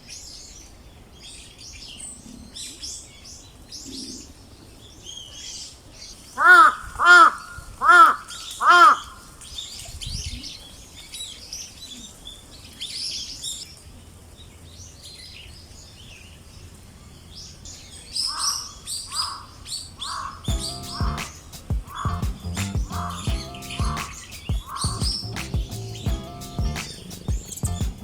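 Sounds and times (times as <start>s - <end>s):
small birds chirping and twittering: 0.0s - 6.4s, 14.4s - 28.0s
crow cawing: 6.4s - 9.2s, 20.1s - 20.4s.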